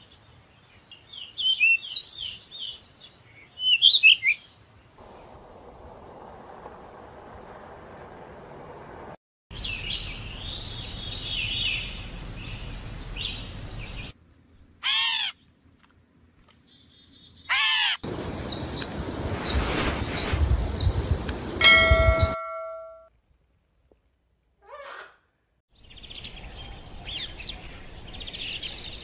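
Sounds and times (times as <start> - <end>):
background noise: 0.0 - 29.0
bird warbling song: 9.6 - 14.6, 16.5 - 22.7
bird chirps: 16.5 - 22.8
harsh bird calls: 16.7 - 22.3
steady tone: 18.1 - 23.1.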